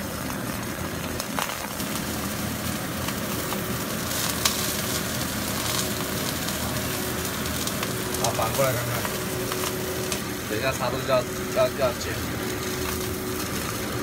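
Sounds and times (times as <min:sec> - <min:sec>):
chicken sizzling in a pan: 0:00.0 - 0:14.0.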